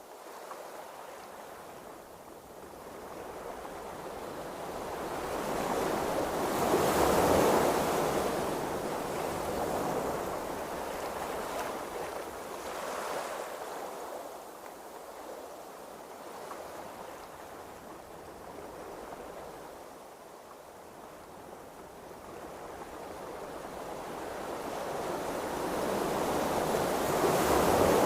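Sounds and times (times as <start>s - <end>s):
wind: 0.0s - 28.0s
ocean waves washing: 22.0s - 28.0s.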